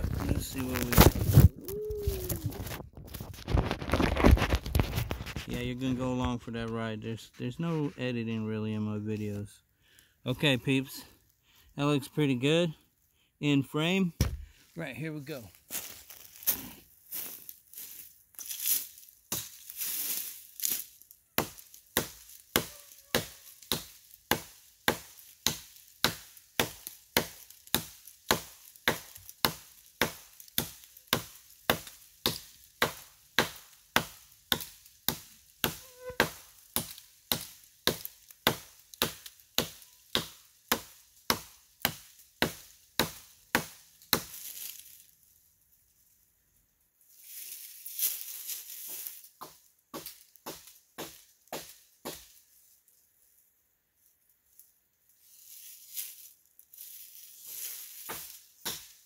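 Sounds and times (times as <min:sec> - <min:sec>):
hatchet chopping log: 0:21.4 - 0:44.4, 0:49.4 - 0:52.3, 0:58.1 - 0:59.0.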